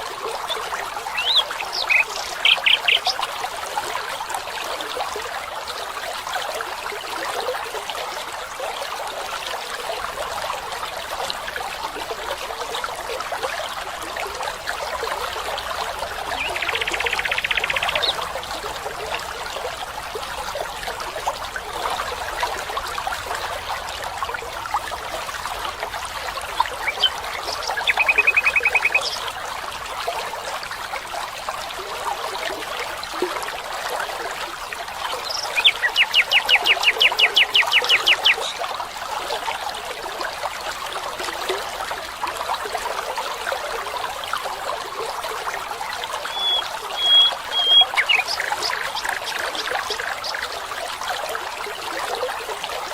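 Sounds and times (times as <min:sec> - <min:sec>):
trickling stream water: 0:00.0 - 0:52.9
high whistled bird notes: 0:46.3 - 0:48.4
birds trilling: 0:46.3 - 0:49.5.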